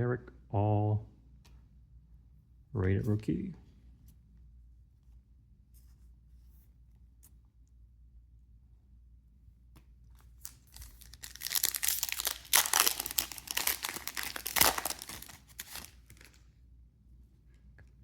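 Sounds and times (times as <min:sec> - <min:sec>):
foil wrapper tearing and crinkling: 0:10.4 - 0:16.4.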